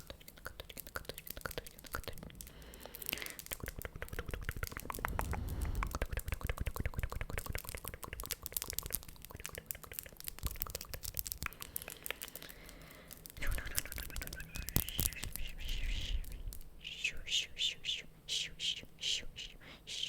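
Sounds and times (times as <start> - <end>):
crinkling and crackling: 0.0 - 16.7
low rumble: 4.5 - 6.6.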